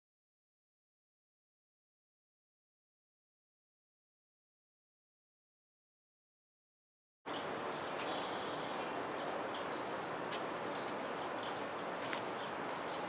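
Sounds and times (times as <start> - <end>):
small birds chirping: 7.3 - 13.0.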